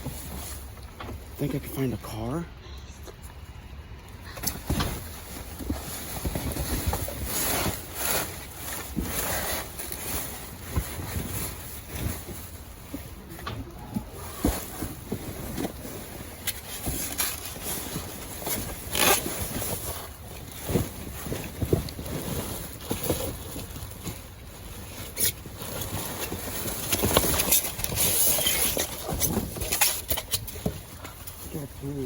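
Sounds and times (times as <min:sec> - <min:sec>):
bags rustling: 0:00.0 - 0:02.1, 0:04.3 - 0:32.0.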